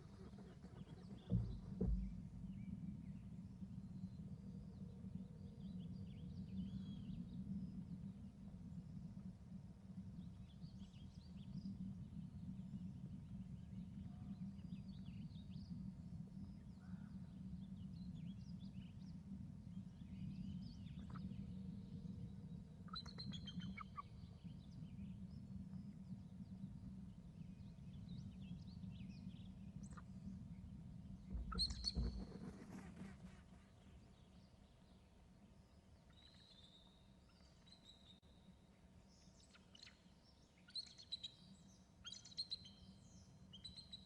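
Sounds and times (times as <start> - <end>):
low rumble: 0.0 - 5.5
small birds chirping: 19.8 - 26.6, 27.4 - 34.9, 39.2 - 44.0.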